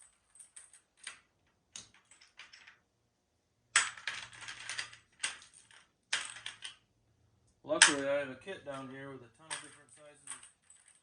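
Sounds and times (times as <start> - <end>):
metal bits clinking and rattling: 0.0 - 2.8, 9.5 - 11.0.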